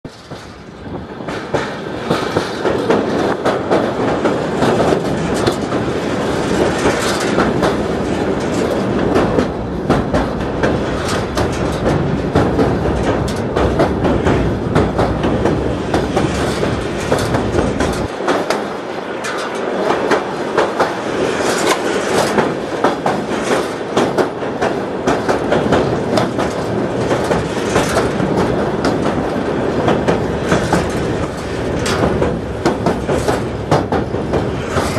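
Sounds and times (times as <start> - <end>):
train rolling rumble: 0.0 - 34.9
wheels clicking over rail joints: 0.0 - 34.9.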